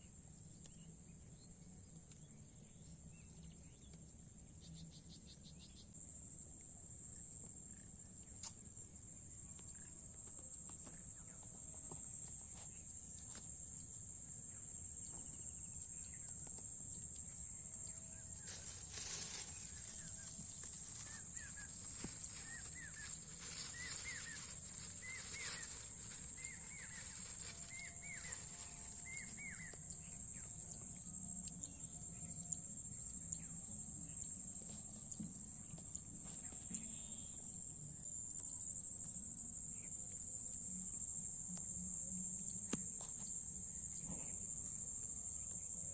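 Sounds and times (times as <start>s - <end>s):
insects droning: 0.0s - 45.9s
bird chirping: 17.8s - 30.5s.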